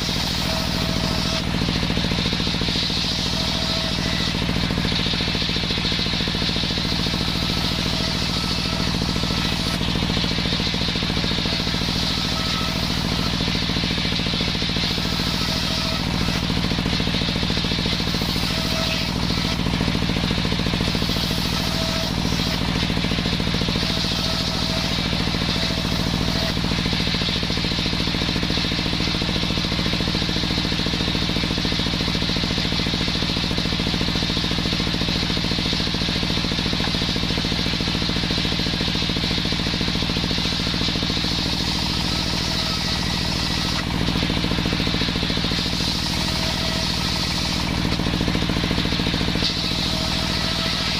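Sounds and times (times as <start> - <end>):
small engine running: 0.0 - 50.9.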